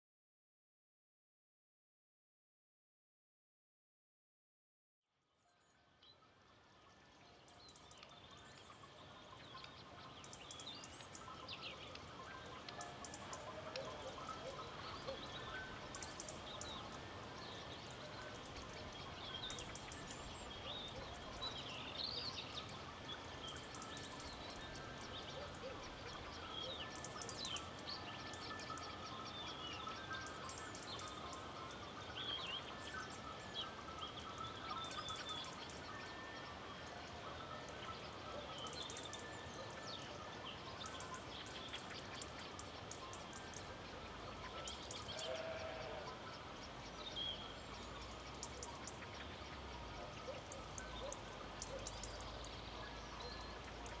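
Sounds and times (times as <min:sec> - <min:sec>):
small birds chirping and twittering: 0:05.5 - 0:54.0.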